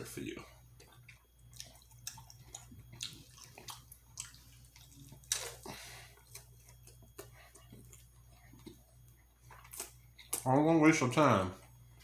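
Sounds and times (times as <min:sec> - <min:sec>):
wet chewing and lip-smacking: 0:00.6 - 0:10.5.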